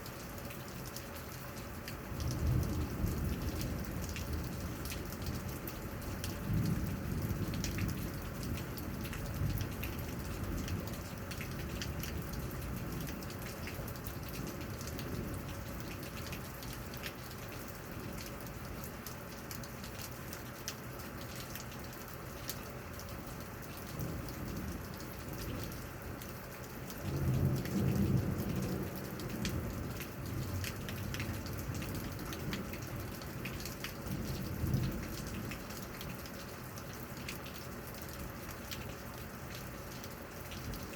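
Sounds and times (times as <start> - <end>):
raindrops ticking: 0.0 - 40.9
steady rain: 0.0 - 40.9
low thunder rumbling: 2.2 - 5.6, 6.3 - 13.3, 27.0 - 35.7.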